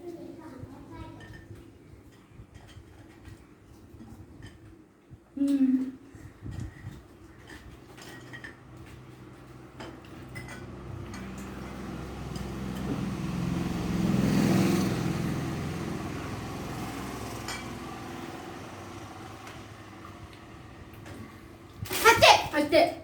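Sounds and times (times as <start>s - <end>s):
vehicle engine passing by: 9.0s - 21.7s.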